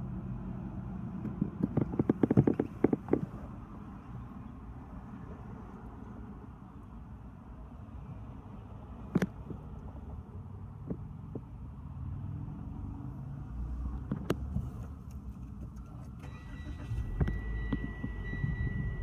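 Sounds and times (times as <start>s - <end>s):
car engine starting and running: 0.0s - 7.3s, 9.0s - 19.0s
electronic warning tone: 16.3s - 19.0s.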